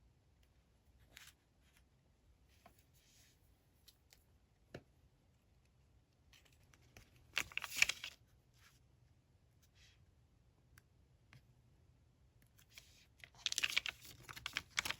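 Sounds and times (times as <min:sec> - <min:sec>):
paper crinkling and tearing: 0:07.4 - 0:08.2, 0:13.3 - 0:14.9.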